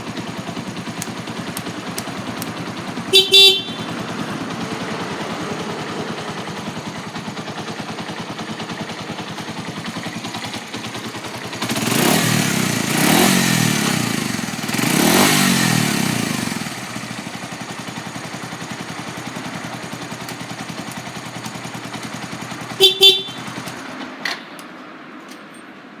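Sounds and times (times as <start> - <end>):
motorcycle engine idling and revving: 0.0 - 24.6
horn short beeps: 3.0 - 4.0, 22.8 - 23.6.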